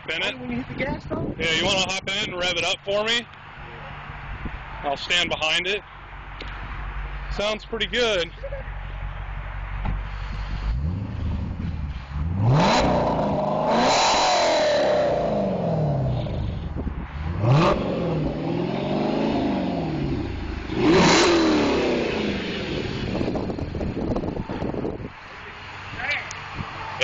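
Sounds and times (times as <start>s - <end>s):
car engine revving: 9.8s - 25.0s.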